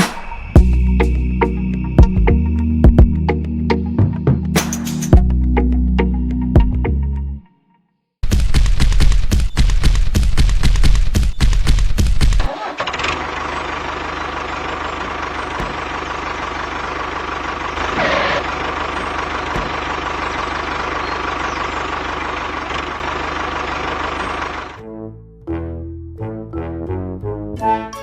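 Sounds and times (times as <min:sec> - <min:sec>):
small motor whining: 0:12.5 - 0:24.8.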